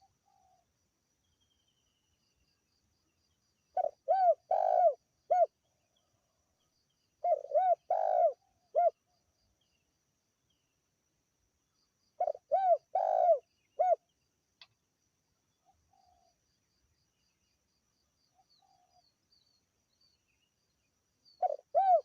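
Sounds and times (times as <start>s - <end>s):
dove cooing: 3.8s - 5.5s, 7.2s - 9.0s, 12.2s - 14.0s, 21.4s - 22.0s.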